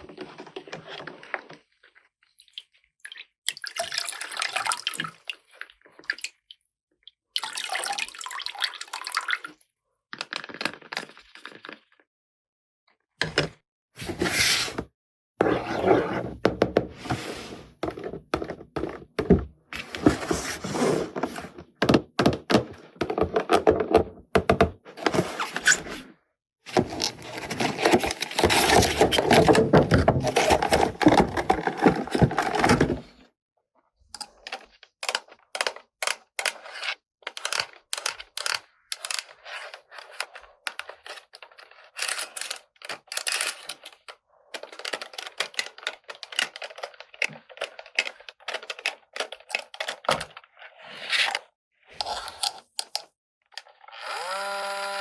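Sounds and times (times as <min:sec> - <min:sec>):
plastic scraping and rubbing: 0:14.0 - 0:26.1, 0:26.7 - 0:33.3
plastic parts clicking: 0:34.2 - 0:36.6, 0:37.3 - 0:39.3, 0:42.0 - 0:50.4, 0:52.4 - 0:53.7.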